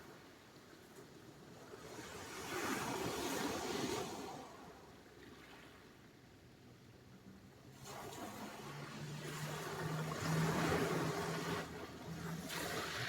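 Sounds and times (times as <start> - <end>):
sea waves washing: 8.0 - 13.0.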